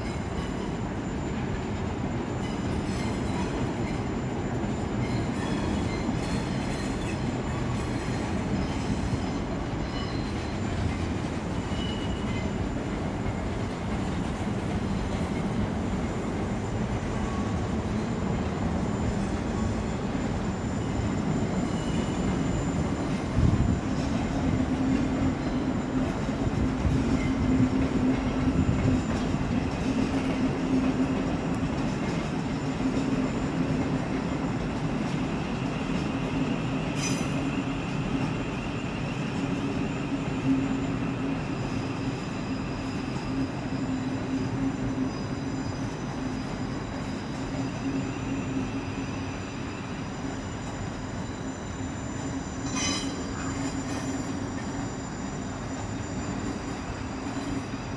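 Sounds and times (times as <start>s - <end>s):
passenger train moving slowly: 0.0s - 57.9s
wheel squeal: 2.3s - 12.7s, 18.8s - 26.2s, 35.3s - 57.9s.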